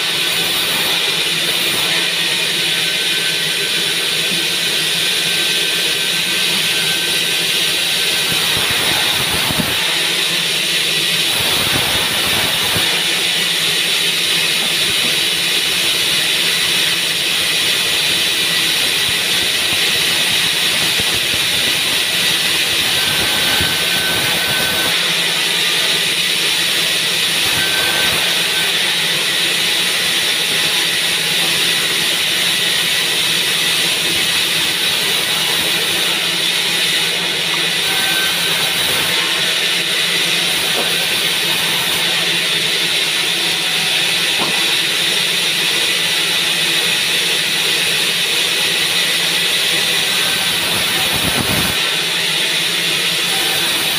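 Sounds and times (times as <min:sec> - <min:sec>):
band saw running: 0:00.0 - 0:53.9.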